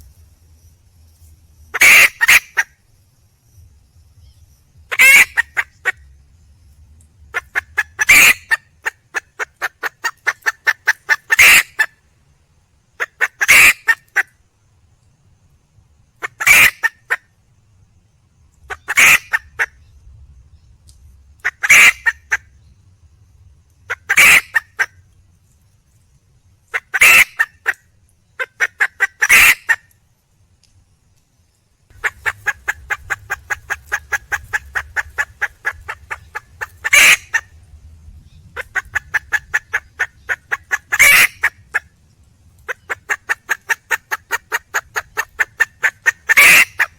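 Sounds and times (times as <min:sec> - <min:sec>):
junglefowl hen clucking and squawking: 0:01.7 - 0:02.7, 0:04.9 - 0:06.2, 0:07.3 - 0:12.0, 0:13.0 - 0:14.3, 0:16.2 - 0:17.2, 0:18.6 - 0:19.8, 0:21.4 - 0:22.6, 0:23.9 - 0:25.0, 0:26.7 - 0:27.8, 0:28.4 - 0:30.0, 0:31.9 - 0:37.6, 0:38.6 - 0:41.9, 0:42.6 - 0:46.9.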